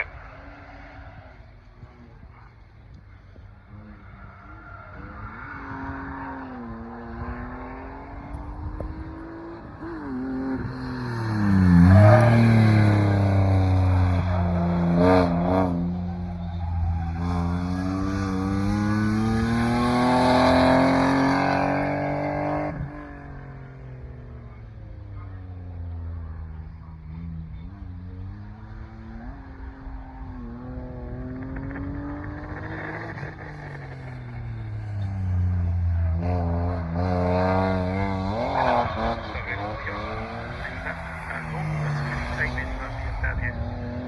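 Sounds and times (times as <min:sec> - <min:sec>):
car engine revving hard: 0:17.0 - 0:23.2, 0:29.0 - 0:44.0.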